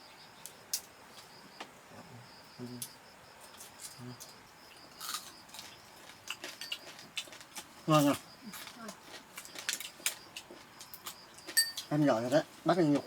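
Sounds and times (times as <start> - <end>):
cricket trilling: 0.0 - 13.0
clicks and clatters of eating: 5.0 - 11.9.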